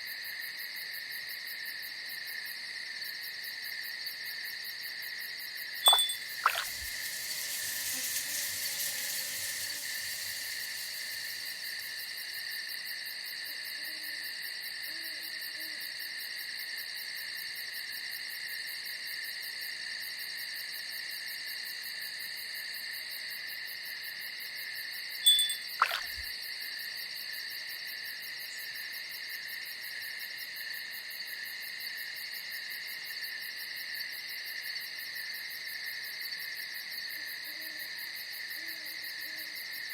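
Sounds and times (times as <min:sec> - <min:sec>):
crickets and insects trilling: 0:05.9 - 0:14.9, 0:25.3 - 0:26.3.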